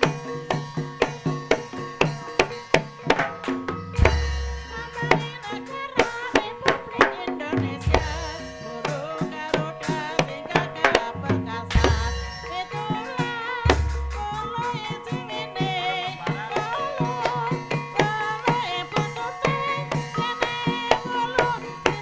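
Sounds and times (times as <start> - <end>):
hand drum strokes: 0.0 - 22.0
pitched percussion tones: 0.0 - 22.0
wavering melody line: 6.5 - 22.0.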